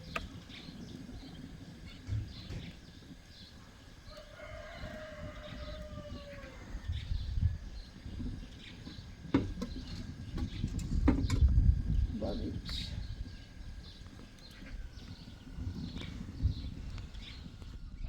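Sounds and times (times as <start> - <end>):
rooster crowing: 4.0 - 7.2.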